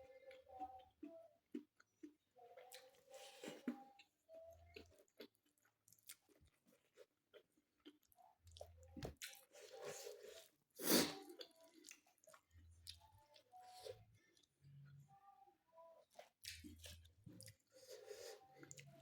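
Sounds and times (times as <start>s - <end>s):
person chewing food: 0.0s - 14.6s, 16.0s - 19.0s.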